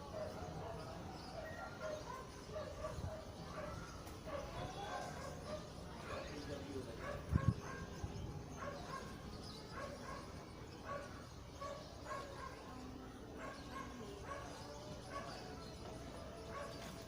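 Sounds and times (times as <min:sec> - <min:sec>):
dog barking: 0:01.4 - 0:06.4, 0:07.0 - 0:08.0, 0:08.6 - 0:12.7, 0:13.4 - 0:15.5, 0:16.5 - 0:16.9.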